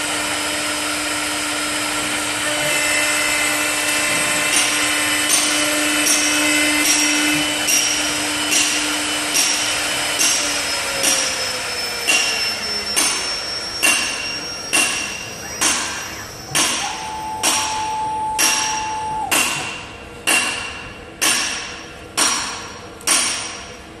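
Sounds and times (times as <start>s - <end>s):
lathe humming: 0.0s - 12.2s, 13.9s - 19.8s.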